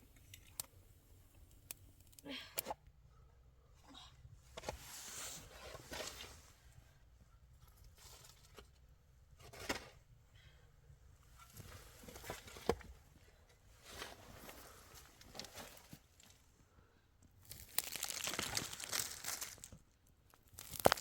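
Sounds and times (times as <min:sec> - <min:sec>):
rustling and scraping of materials: 0:04.5 - 0:06.8, 0:07.6 - 0:10.1, 0:11.2 - 0:16.5, 0:17.5 - 0:19.8, 0:20.6 - 0:21.0.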